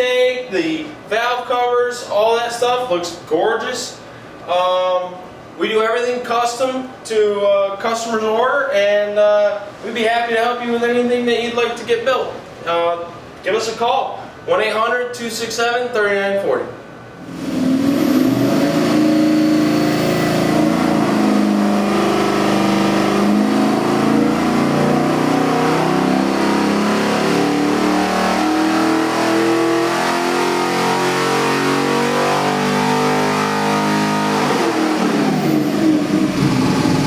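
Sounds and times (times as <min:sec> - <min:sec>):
engine running at high revs: 0:17.2 - 0:37.0.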